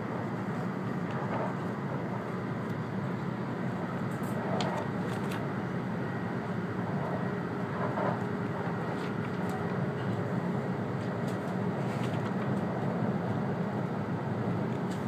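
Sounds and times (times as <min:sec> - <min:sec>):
train cabin rumble and hiss: 0:00.0 - 0:15.0.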